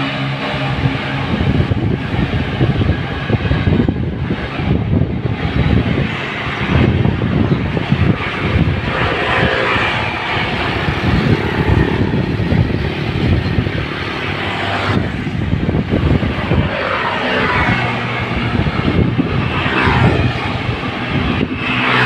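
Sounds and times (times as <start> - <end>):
wind buffeting microphone: 0.0 - 22.0
vehicle engine running: 3.7 - 16.6.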